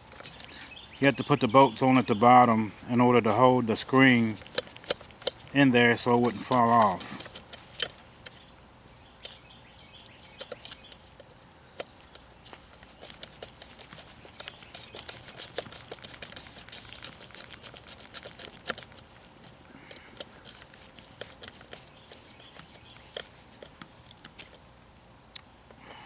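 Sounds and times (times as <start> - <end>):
small metal parts clicking: 11.8 - 19.3.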